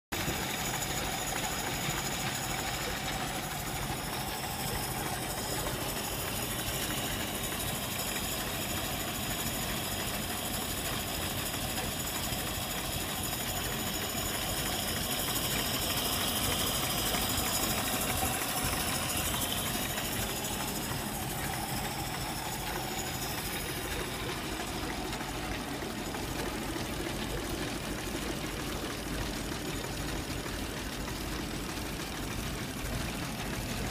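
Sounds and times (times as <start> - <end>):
car engine idling: 0.2 - 33.9.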